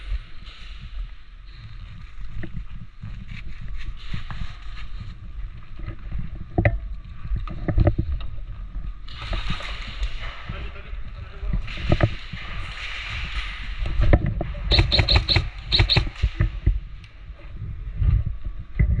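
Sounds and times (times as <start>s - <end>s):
sharp knocks: 14.7s - 16.5s.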